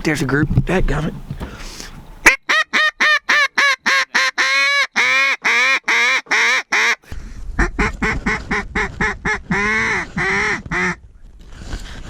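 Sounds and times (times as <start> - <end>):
duck call quacks: 2.2 - 11.0
wind rumble: 7.1 - 12.0.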